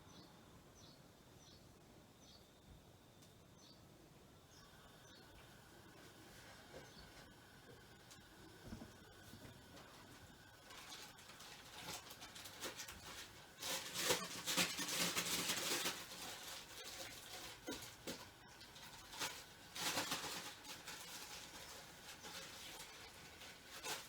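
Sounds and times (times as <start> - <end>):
plastic bag rustling: 8.2 - 24.0.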